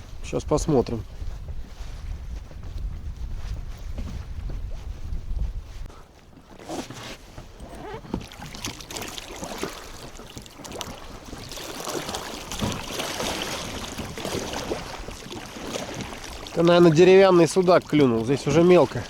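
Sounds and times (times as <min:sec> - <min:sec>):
strong wind: 0:00.0 - 0:06.1
water slapping against boat: 0:06.2 - 0:19.0.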